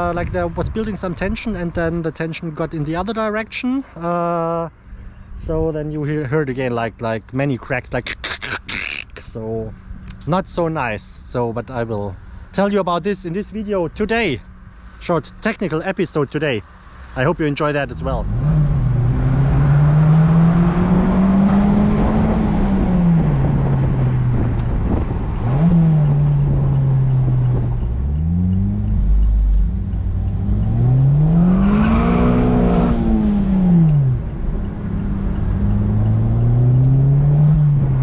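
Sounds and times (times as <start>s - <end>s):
car engine revving: 17.7s - 38.0s.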